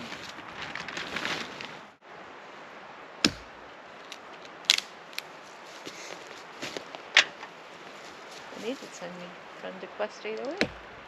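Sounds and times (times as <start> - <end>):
steady background hiss: 0.0 - 11.0
sharp knocks: 3.2 - 3.5, 10.6 - 10.9.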